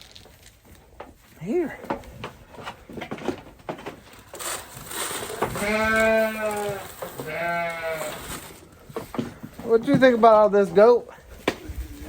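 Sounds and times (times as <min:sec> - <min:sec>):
goat bleating: 0:05.4 - 0:08.3.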